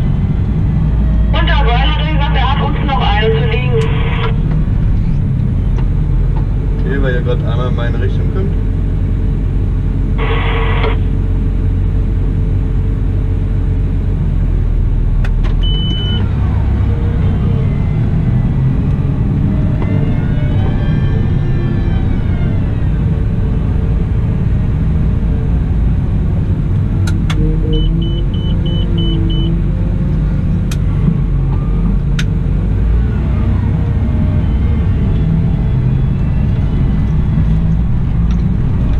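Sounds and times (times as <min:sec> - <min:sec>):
diesel engine under load: 0:00.0 - 0:38.9
short high beeps: 0:27.5 - 0:29.6.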